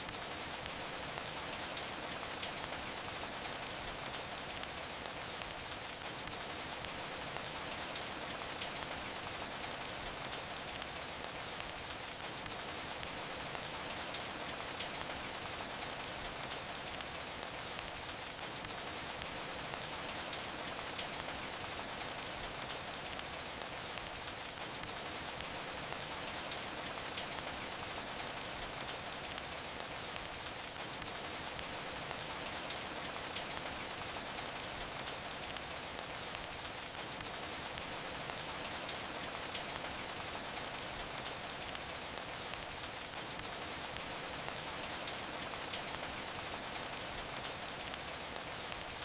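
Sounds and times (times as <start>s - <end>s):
sharp clicks and crackles: 0.0s - 49.0s
steady rain hiss: 0.0s - 49.0s.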